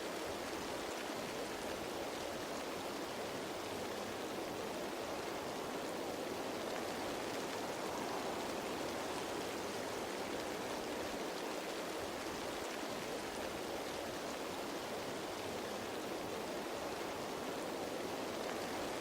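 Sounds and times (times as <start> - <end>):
rain falling on leaves: 0.0 - 19.0.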